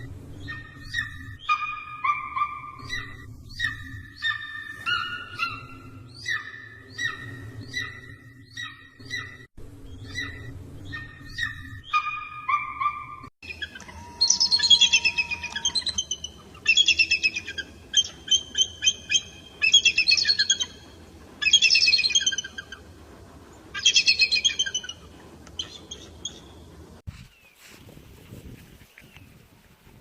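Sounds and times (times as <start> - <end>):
eagle chittering call: 10.0 - 22.9.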